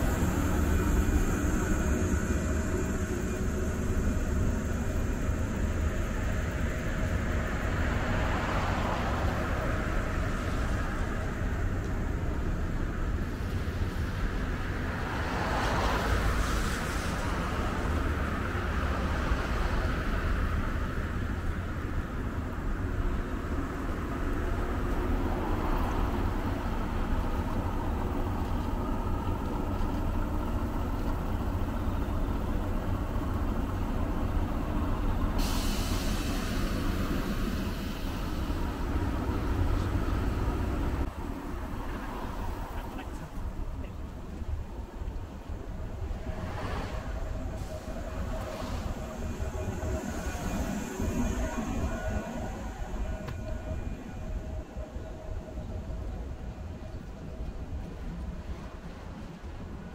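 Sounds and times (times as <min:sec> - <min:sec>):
train rumbling on rails: 0:00.0 - 0:59.9
sudden hiss: 0:34.5 - 0:41.1, 0:45.4 - 0:55.0.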